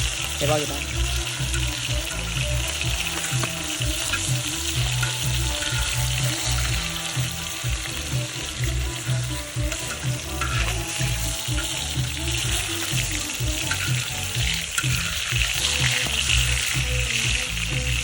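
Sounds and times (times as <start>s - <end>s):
fish frying in hot fat: 0.0s - 18.0s.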